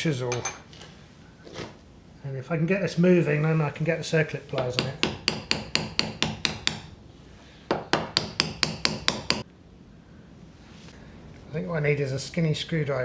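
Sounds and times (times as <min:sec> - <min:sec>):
hammer tapping on metal: 0:04.6 - 0:06.9, 0:07.7 - 0:09.4.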